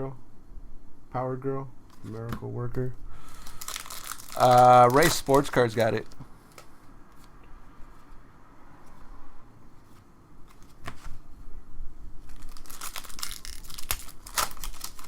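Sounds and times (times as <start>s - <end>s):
wrapper tearing and crinkling: 3.3s - 6.2s, 12.2s - 15.0s.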